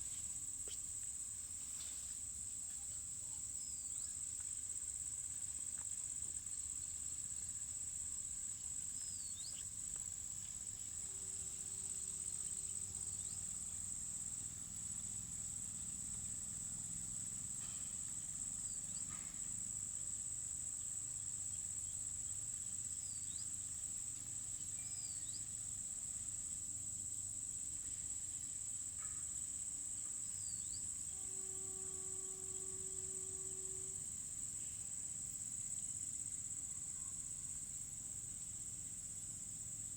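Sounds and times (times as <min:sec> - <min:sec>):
high-pitched insect chorus: 0:00.0 - 0:39.9
faint chirps: 0:08.9 - 0:09.8.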